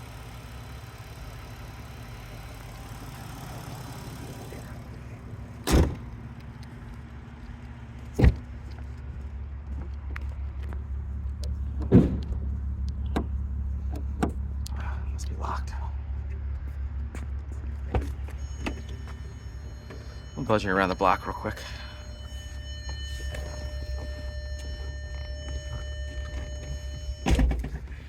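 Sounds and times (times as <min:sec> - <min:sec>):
car engine idling: 0:00.0 - 0:28.0
car door slams: 0:05.6 - 0:06.2, 0:08.2 - 0:08.4, 0:11.8 - 0:12.4, 0:27.2 - 0:27.8.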